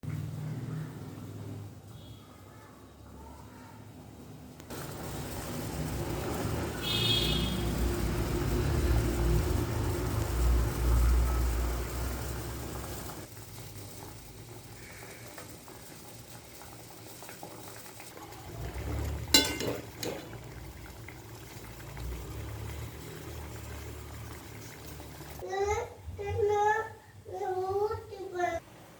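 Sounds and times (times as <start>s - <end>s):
water boiling in a pot: 4.7s - 25.5s
metal utensil clinks: 19.4s - 19.9s.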